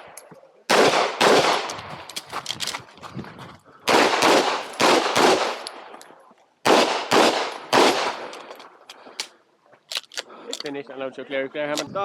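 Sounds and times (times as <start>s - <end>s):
pistol shots: 0.7s - 1.8s, 3.9s - 6.0s, 6.6s - 8.4s.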